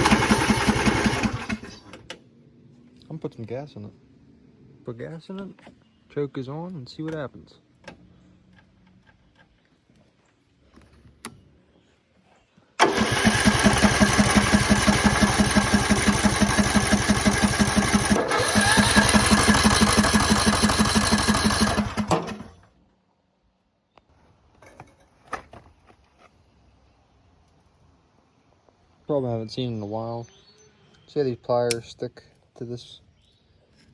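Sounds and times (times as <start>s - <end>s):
engine cranking by starter: 0.0s - 2.2s, 12.8s - 22.7s.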